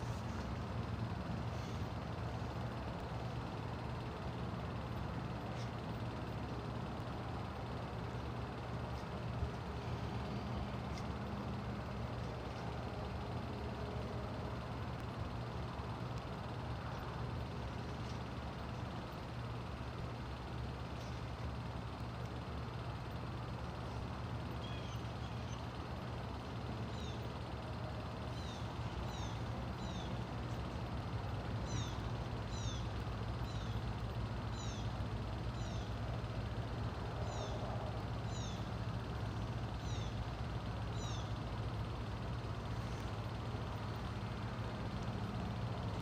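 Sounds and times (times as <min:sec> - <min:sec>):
low hum: 0:00.0 - 0:46.0.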